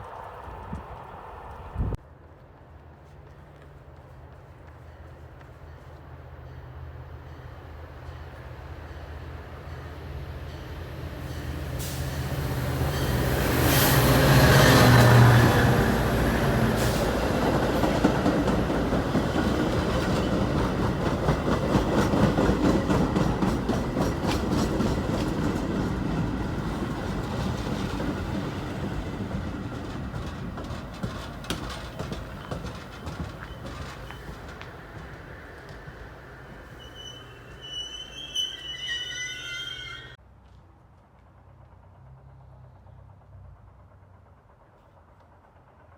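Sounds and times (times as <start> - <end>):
locomotive engine hum: 2.8 - 40.2
train wheels clattering over rail joints: 14.4 - 37.6.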